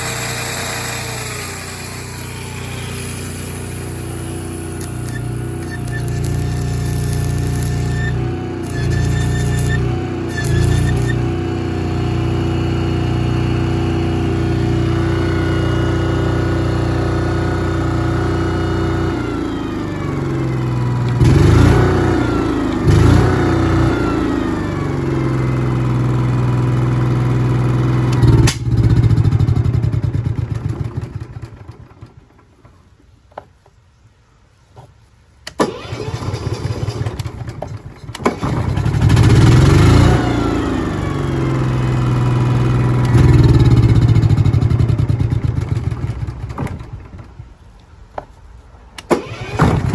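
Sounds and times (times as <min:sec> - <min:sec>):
engine cranking rattle: 0:00.0 - 0:11.3, 0:35.6 - 0:47.5, 0:49.0 - 0:49.9
generator engine running: 0:00.0 - 0:32.5, 0:35.6 - 0:47.2, 0:49.2 - 0:49.9.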